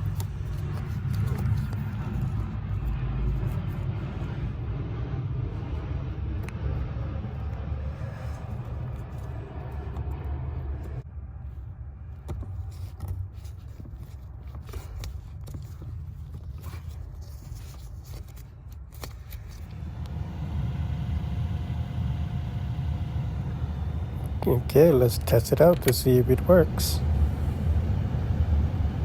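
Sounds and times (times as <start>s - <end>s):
low rumble: 0.0s - 12.2s, 19.6s - 29.0s
faint steady hum: 0.0s - 29.0s.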